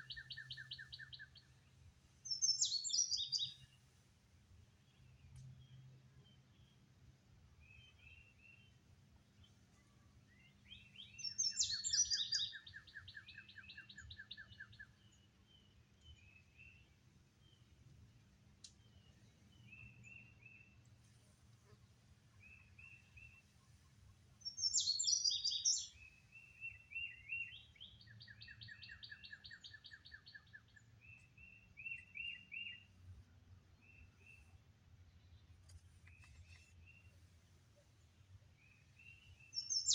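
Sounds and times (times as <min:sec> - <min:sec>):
bird song with fast trill: 0:00.0 - 0:01.5, 0:02.3 - 0:03.8, 0:10.3 - 0:16.8, 0:24.4 - 0:33.0, 0:38.6 - 0:39.9
birds chirping: 0:10.4 - 0:16.8, 0:24.4 - 0:32.9, 0:38.6 - 0:39.9.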